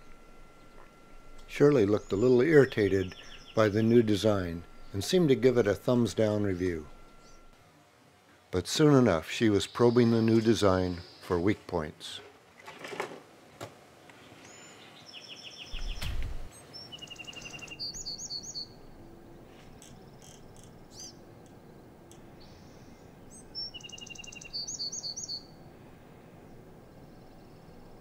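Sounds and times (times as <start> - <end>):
small birds chirping: 0.0 - 7.6, 14.0 - 28.0
steady background hiss: 0.0 - 28.0
dull low thump: 15.8 - 16.5.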